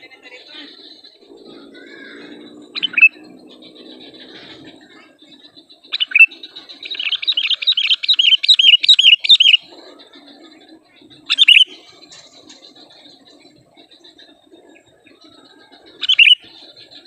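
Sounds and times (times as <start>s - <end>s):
bulbul calling: 0.0s - 17.0s
bright chirping notes: 1.2s - 6.3s.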